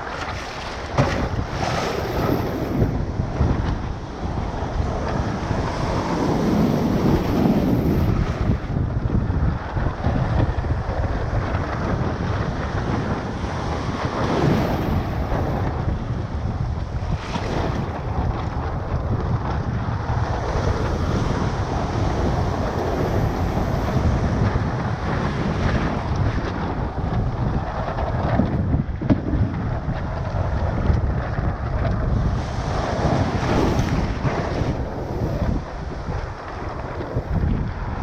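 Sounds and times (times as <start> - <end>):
shorebreak waves washing: 0.0 - 38.0
wind buffeting microphone: 0.0 - 38.0.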